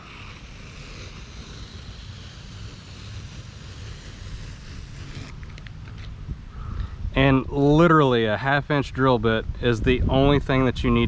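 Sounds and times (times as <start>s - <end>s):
wind hiss on microphone: 9.0s - 11.0s.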